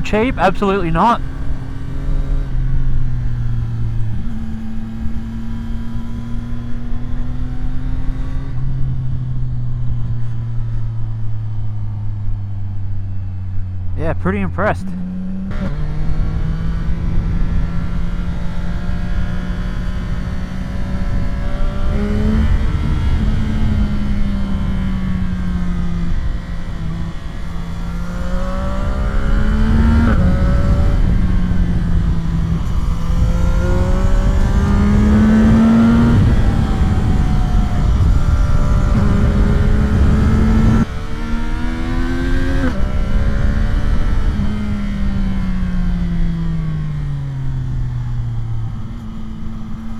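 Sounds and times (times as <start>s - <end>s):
motorcycle engine revving: 15.0s - 49.9s.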